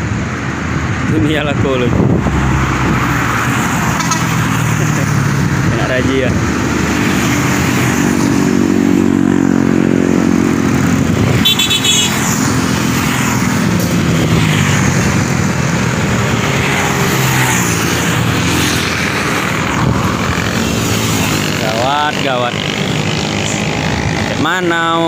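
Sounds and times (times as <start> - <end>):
motorcycles and cars passing: 0.0 - 25.0.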